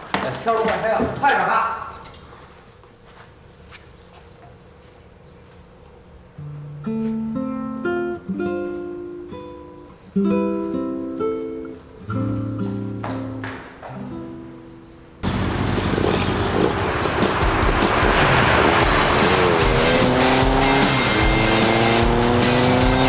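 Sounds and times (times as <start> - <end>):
acoustic guitar melody: 5.9 - 23.0
loud dense rushing noise: 15.2 - 23.0.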